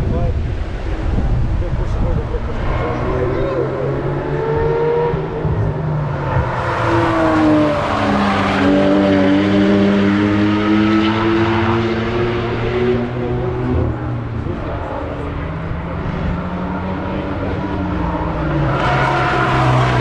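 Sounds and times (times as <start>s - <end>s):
car engines accelerating: 0.0s - 20.0s.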